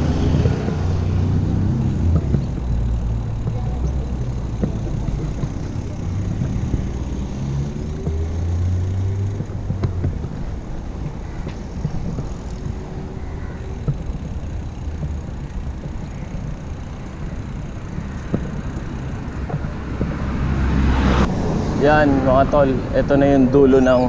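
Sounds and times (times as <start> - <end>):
motor traffic rumble: 0.0 - 24.0.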